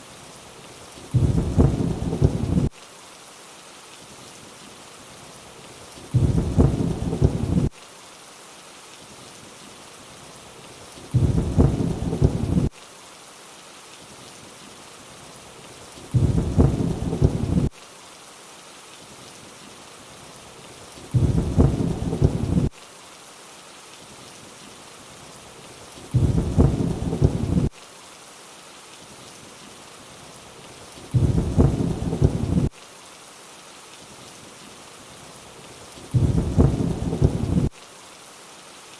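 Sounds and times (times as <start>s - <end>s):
rain hiss: 0.0s - 38.9s
low thunder rumble: 1.1s - 2.7s, 6.1s - 7.7s, 11.1s - 12.7s, 16.1s - 17.7s, 21.1s - 22.7s, 26.1s - 27.7s, 31.1s - 32.7s, 36.1s - 37.7s.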